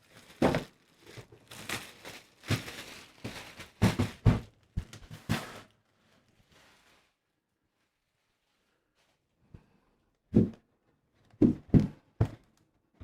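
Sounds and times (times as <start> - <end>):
plastic shrink-wrap tearing: 0.0 - 3.9.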